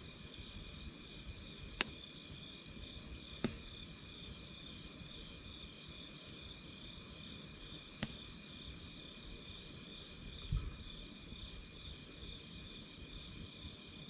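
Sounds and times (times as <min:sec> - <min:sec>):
campfire crackling: 0:00.0 - 0:14.0
sharp fire pops: 0:01.6 - 0:02.1, 0:02.9 - 0:06.5, 0:07.8 - 0:08.8, 0:09.9 - 0:11.0.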